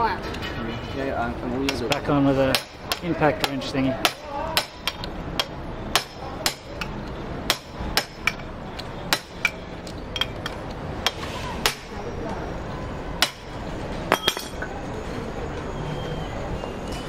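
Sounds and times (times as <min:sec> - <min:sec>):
hammer striking metal: 0:01.7 - 0:08.5, 0:09.1 - 0:12.0, 0:13.2 - 0:14.6.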